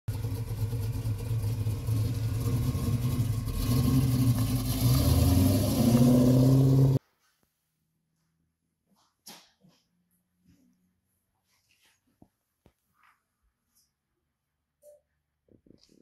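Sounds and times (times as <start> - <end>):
car engine driving off: 0.1 - 7.0.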